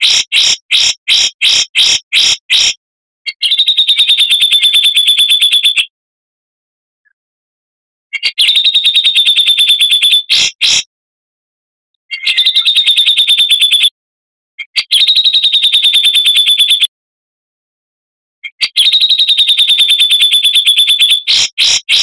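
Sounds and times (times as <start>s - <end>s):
bird singing fast trills: 0.0s - 5.9s, 8.1s - 10.9s, 12.1s - 13.9s, 14.6s - 16.9s, 18.4s - 22.0s.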